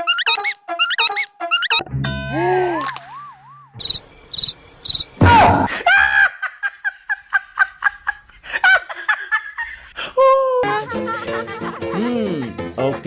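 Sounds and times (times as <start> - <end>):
short high beeps: 0.0 - 1.8.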